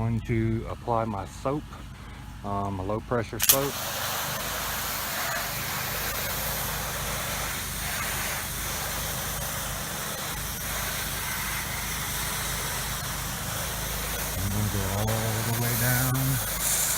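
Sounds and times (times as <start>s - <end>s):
machine humming: 3.4s - 16.9s
spray hissing: 3.4s - 16.9s.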